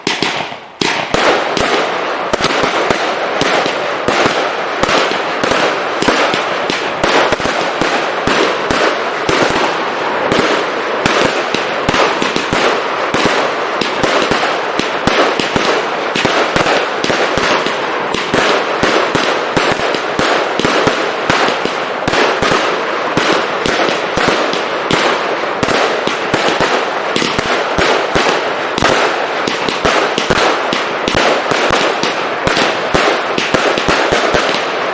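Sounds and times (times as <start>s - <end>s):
firework crackling pops: 0.0s - 34.9s.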